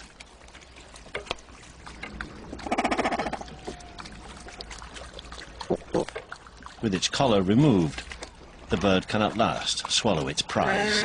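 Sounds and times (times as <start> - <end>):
cormorant croaking: 2.3 - 4.5, 10.5 - 11.0.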